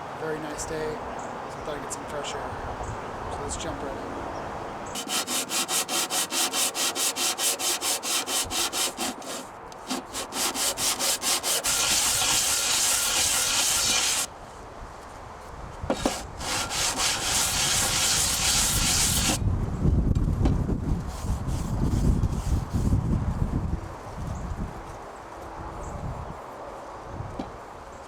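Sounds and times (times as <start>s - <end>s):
metal scraping on sandpaper: 4.9s - 14.3s, 15.9s - 19.4s, 21.1s - 23.0s.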